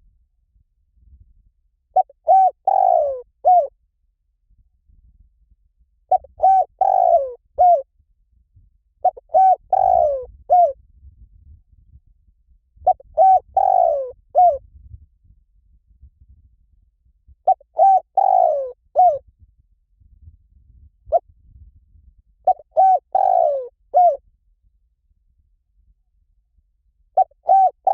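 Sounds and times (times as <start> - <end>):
dove cooing: 2.0 - 3.7, 6.1 - 7.8, 9.0 - 10.8, 12.9 - 14.6, 17.5 - 19.2, 22.5 - 24.2, 27.2 - 27.9.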